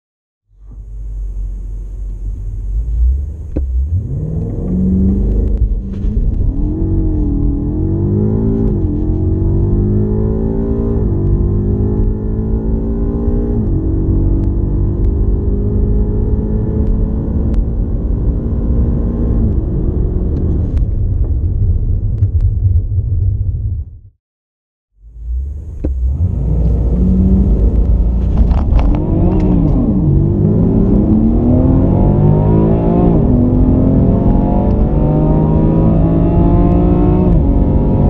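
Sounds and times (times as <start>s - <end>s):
car engine at full throttle: 0.5s - 23.7s, 25.0s - 38.0s.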